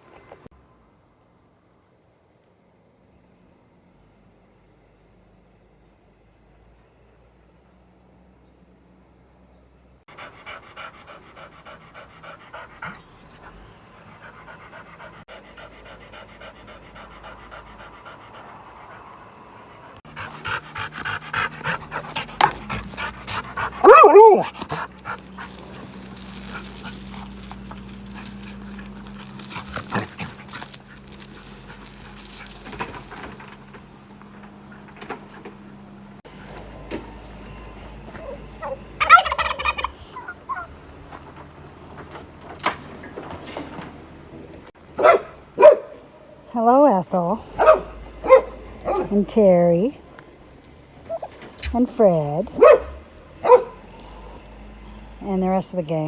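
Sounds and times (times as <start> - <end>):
dog panting: 10.1 - 33.5
dog crying: 20.2 - 31.6.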